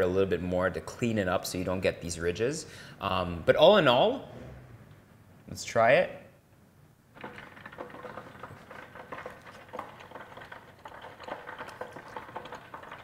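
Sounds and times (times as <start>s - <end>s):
chewing crunchy food: 7.2s - 13.0s.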